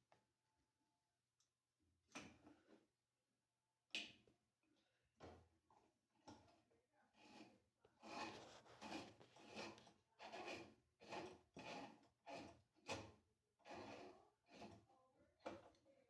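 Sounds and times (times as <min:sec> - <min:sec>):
faint plastic scraping strokes: 0:07.2 - 0:12.6.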